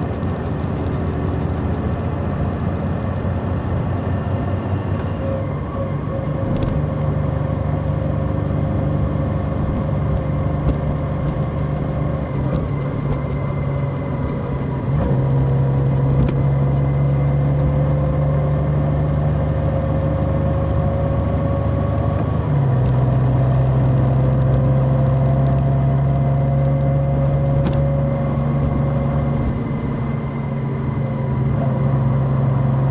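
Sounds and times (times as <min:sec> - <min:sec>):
motorcycle engine shifting gears: 0:00.0 - 0:32.9.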